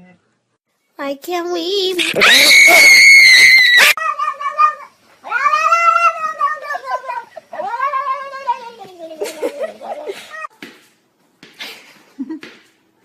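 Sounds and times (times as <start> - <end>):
cat yowling: 2.0 - 10.5.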